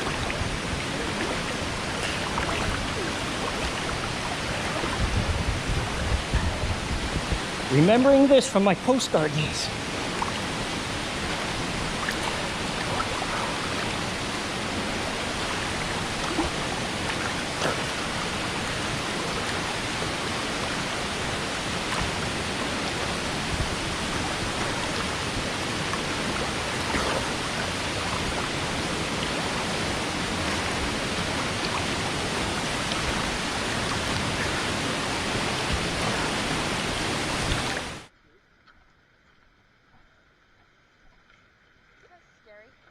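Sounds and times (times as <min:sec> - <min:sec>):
waterfall pouring into a pool: 0:00.0 - 0:05.0, 0:08.9 - 0:38.1
faint water splashes: 0:00.0 - 0:42.9.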